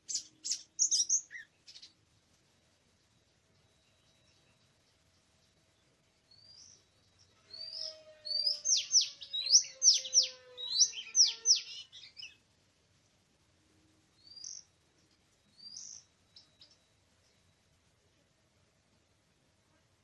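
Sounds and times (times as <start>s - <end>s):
bird singing whistles: 7.6s - 12.4s.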